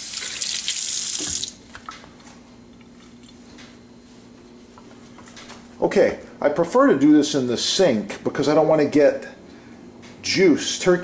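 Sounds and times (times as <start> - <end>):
tap water running and splashing: 0.0 - 1.6.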